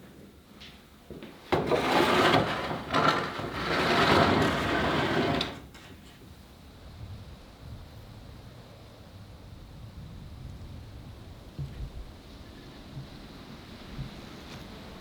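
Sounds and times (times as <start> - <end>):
hand plane shaving wood: 1.6 - 5.6.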